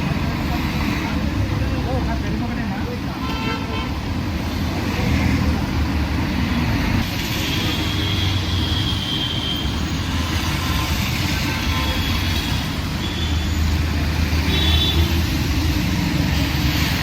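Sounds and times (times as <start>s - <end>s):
street traffic rumble: 0.0s - 17.0s
car horn: 3.2s - 4.0s, 14.5s - 15.1s.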